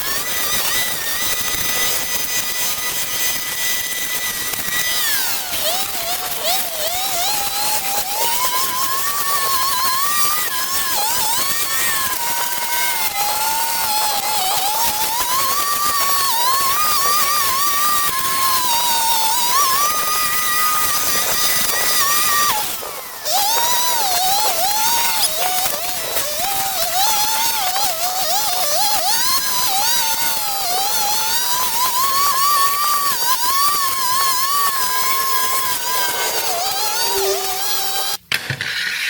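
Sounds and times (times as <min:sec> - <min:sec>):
power tool motor whining: 0:00.0 - 0:38.3.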